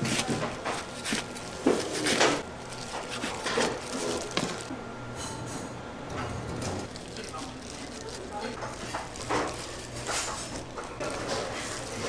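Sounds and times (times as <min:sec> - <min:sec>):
faint voices: 0:06.9 - 0:12.0
dishes and utensils clinking: 0:08.2 - 0:12.0.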